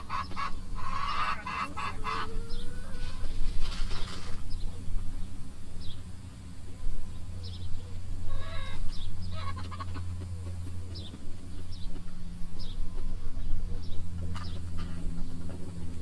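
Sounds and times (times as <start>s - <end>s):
chicken squawk: 0.0s - 3.4s, 8.3s - 10.1s
chickens clucking: 0.0s - 5.6s, 6.7s - 16.0s
steady low hum: 0.0s - 16.0s.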